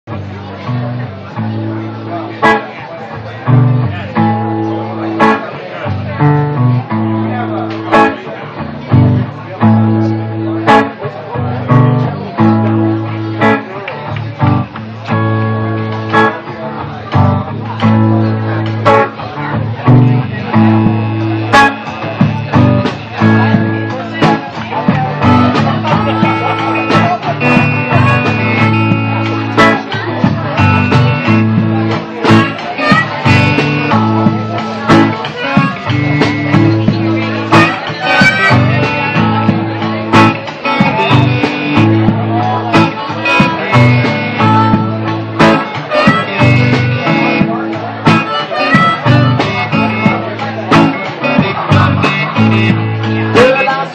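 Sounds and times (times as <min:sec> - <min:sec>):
blues-rock band playing: 0:00.1 - 0:53.9
drum and cymbal hits: 0:20.7 - 0:48.3.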